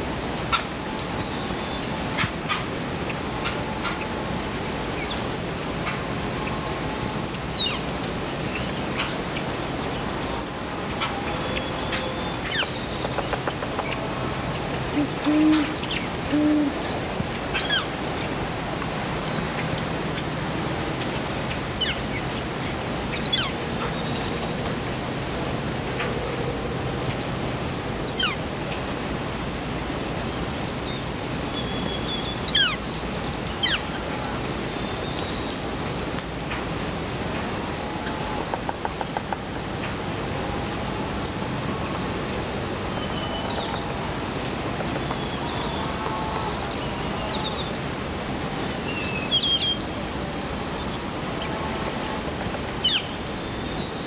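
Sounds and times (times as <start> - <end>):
steady background hiss: 0.0 - 54.0
owl hooting low notes: 14.9 - 17.1.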